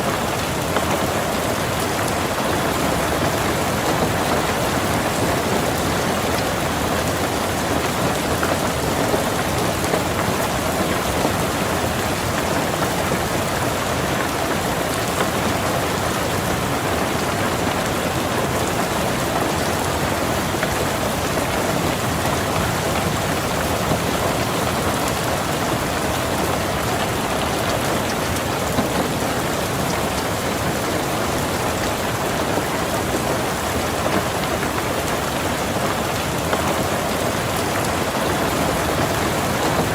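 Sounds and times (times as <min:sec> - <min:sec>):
louder raindrops: 0:00.0 - 0:39.9
rain falling on a car: 0:00.0 - 0:39.9.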